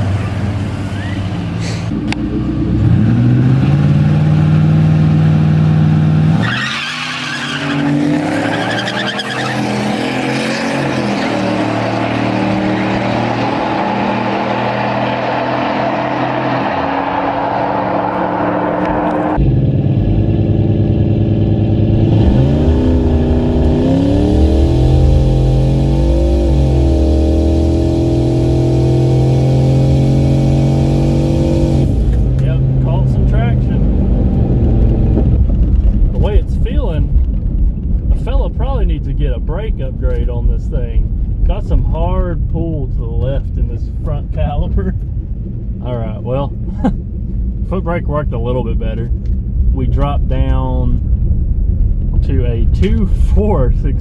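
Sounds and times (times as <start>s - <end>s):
drag car engine revving: 0.0s - 36.6s.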